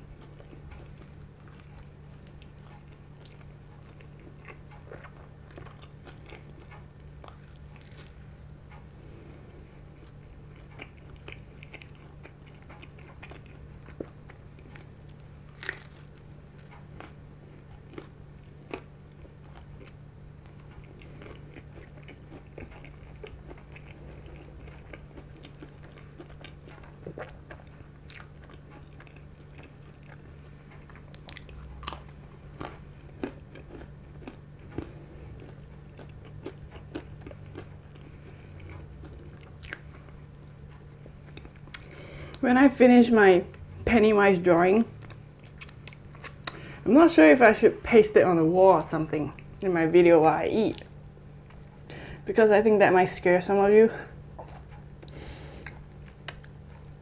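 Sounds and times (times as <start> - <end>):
chewing pizza crust: 0.0 - 48.0, 49.1 - 52.2, 53.9 - 57.0
low hum: 0.0 - 57.0
crisp crunches: 15.5 - 16.2.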